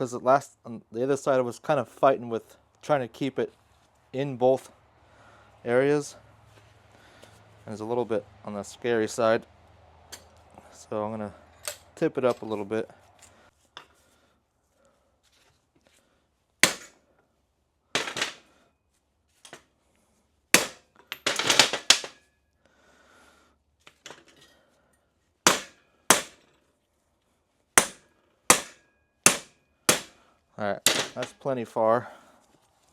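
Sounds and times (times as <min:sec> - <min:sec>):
hammer striking steel: 0:16.6 - 0:17.0, 0:20.6 - 0:20.8, 0:25.5 - 0:26.4, 0:27.8 - 0:30.2.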